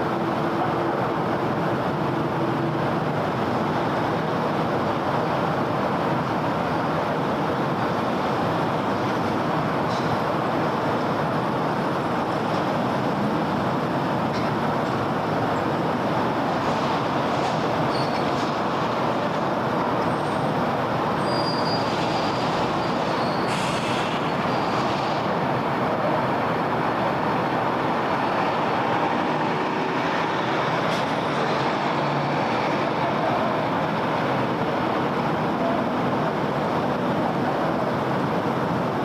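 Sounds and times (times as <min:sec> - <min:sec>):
dense road traffic: 0:00.0 - 0:39.0
brief high squeals: 0:21.2 - 0:24.8.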